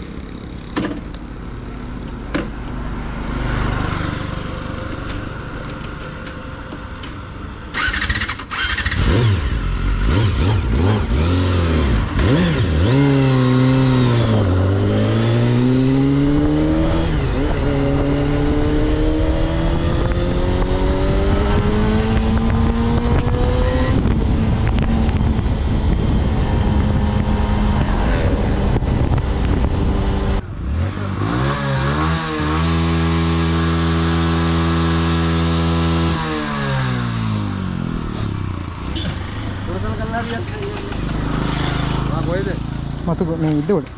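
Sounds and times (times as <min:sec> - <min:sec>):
motorcycle engine pulling hard: 0:07.7 - 0:43.9
wind noise: 0:11.8 - 0:33.0.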